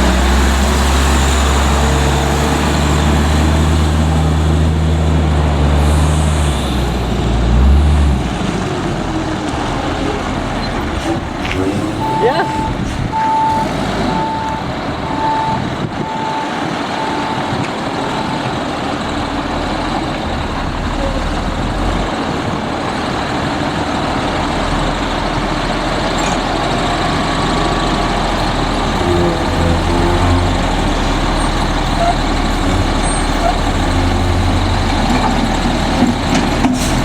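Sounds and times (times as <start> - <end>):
garbage truck diesel engine: 0.0 - 37.0
reversing alarm beeping: 11.6 - 18.9, 29.0 - 35.9.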